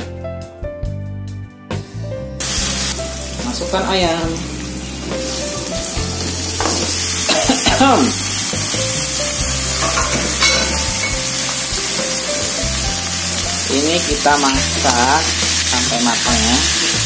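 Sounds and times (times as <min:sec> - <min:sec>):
chicken sizzling in hot oil: 0:02.4 - 0:17.0.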